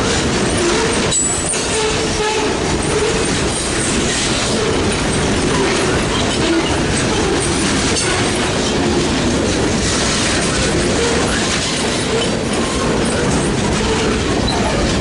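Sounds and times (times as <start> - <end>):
freight train rumbling past: 0.0 - 15.0
wheels clicking over rail joints: 0.0 - 15.0.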